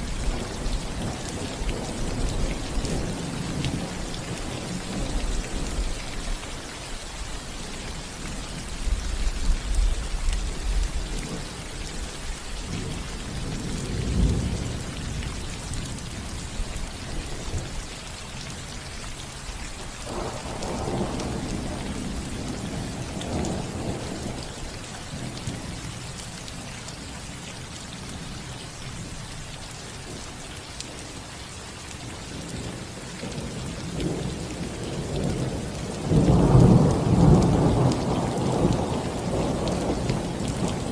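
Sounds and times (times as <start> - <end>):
rain on a roof: 0.0 - 40.9
rolling thunder: 33.2 - 40.9.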